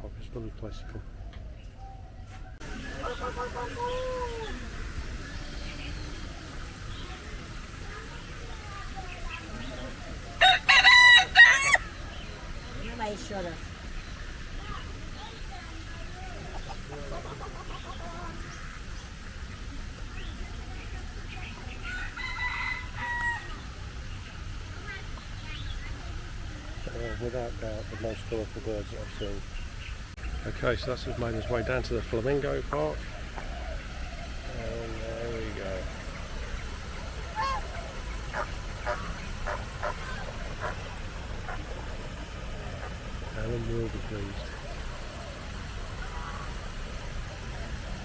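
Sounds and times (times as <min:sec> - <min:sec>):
birds chirping and calling: 0:00.3 - 0:48.0
flamingos honking: 0:02.6 - 0:48.0
large bird loud held call: 0:33.0 - 0:43.3.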